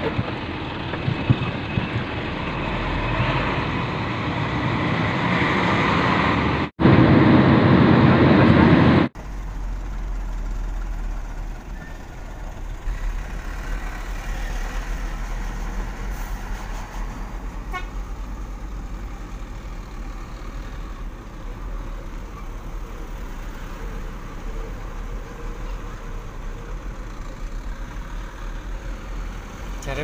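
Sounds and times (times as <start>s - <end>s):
truck diesel engine rumbling: 0.0s - 30.0s
vehicle horn toots: 17.7s - 18.0s.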